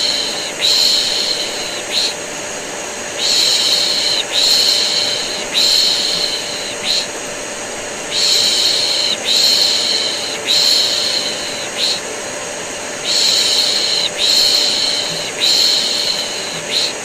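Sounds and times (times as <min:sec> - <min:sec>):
vacuum cleaner running: 0:00.0 - 0:17.0
person shushing: 0:08.1 - 0:12.1, 0:13.0 - 0:17.0.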